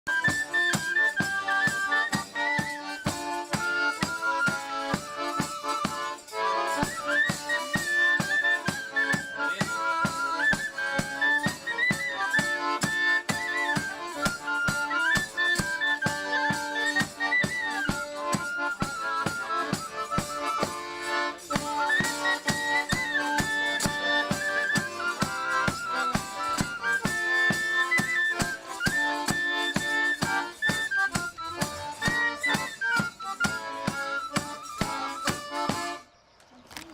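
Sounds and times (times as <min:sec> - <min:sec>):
lively instrumental folk music: 0:00.0 - 0:36.9
brisk percussion beat: 0:00.1 - 0:36.0.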